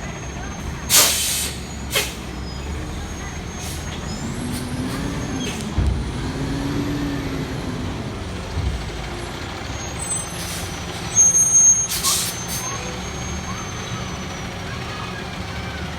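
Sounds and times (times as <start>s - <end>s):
garbage truck diesel engine: 0.0s - 15.9s
air brake hiss: 0.9s - 2.3s, 10.3s - 10.8s, 11.5s - 12.8s
low thumps: 5.6s - 7.6s.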